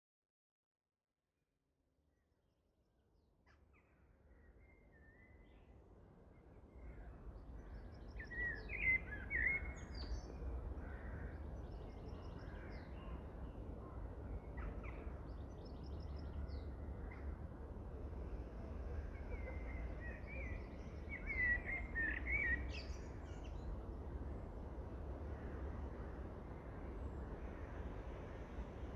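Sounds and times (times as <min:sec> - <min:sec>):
woodland birds singing: 0:07.6 - 0:10.3, 0:19.3 - 0:24.0.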